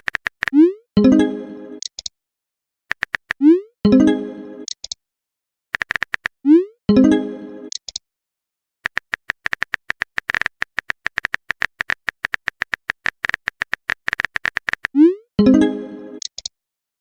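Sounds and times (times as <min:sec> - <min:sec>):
keyboard typing taps: 0:00.0 - 0:00.6, 0:02.9 - 0:03.4, 0:05.8 - 0:06.3, 0:08.9 - 0:15.0
message chime: 0:03.9 - 0:04.7, 0:06.9 - 0:07.7, 0:15.4 - 0:16.2.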